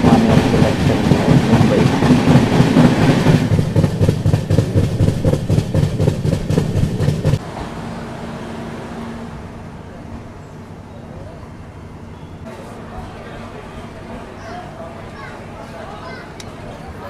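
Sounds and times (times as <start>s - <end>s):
rapid clicking and rattling: 0.0s - 7.4s
train rumbling on track: 0.0s - 17.0s.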